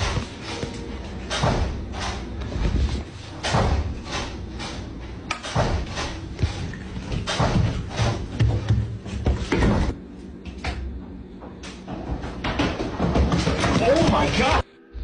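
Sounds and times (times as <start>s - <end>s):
irregular knocks and thumps: 5.6s - 10.0s.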